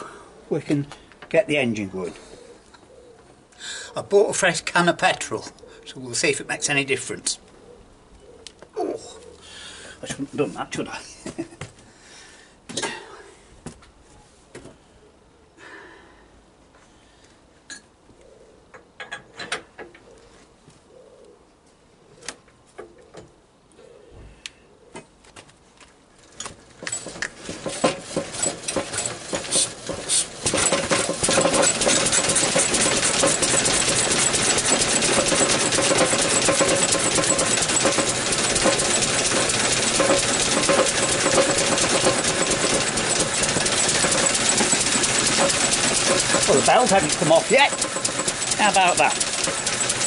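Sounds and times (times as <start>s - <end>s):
belt and pulley running: 26.8s - 50.0s
small petrol engine starting: 26.8s - 50.0s.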